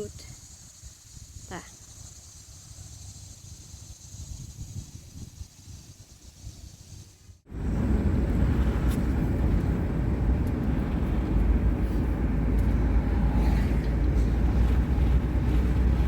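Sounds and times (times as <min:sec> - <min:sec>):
car road and engine noise: 0:07.4 - 0:16.0.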